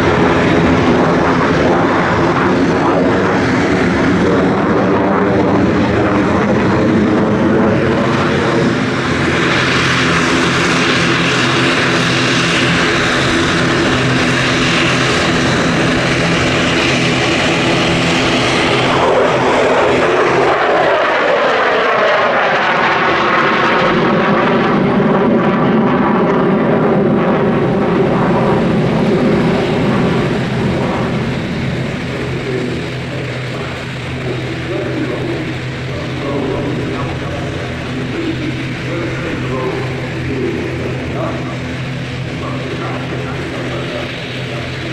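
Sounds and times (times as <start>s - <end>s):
jet engine roaring: 0.0s - 44.9s.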